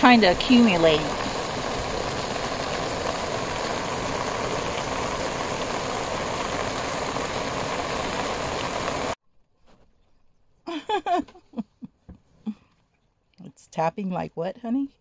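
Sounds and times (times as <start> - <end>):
hail pattering: 0.0 - 9.2.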